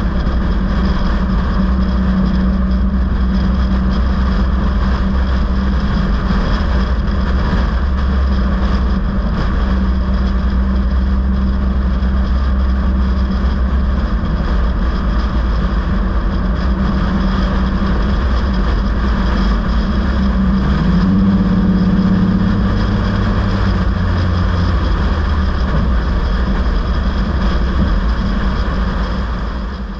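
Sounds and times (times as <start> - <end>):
vehicle engine and road noise: 0.0 - 29.9
second higher engine note: 19.6 - 27.4.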